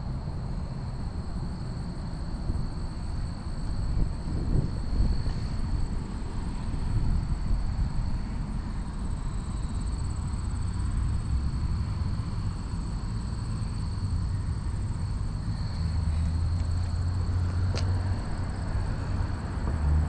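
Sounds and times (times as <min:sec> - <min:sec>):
bike road noise: 0:00.0 - 0:20.0
wind buffeting microphone: 0:02.5 - 0:09.3.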